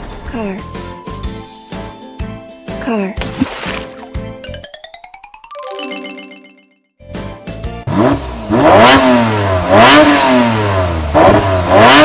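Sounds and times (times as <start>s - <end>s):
falling musical jingle: 4.3s - 7.0s.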